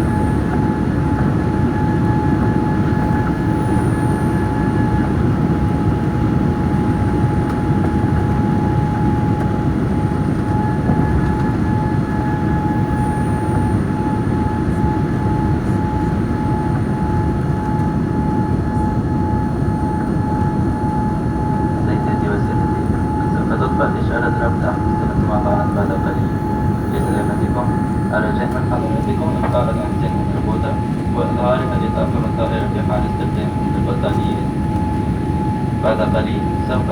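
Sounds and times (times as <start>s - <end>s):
jet engine and airflow rumble: 0.0s - 36.9s
steady whine: 0.0s - 36.9s.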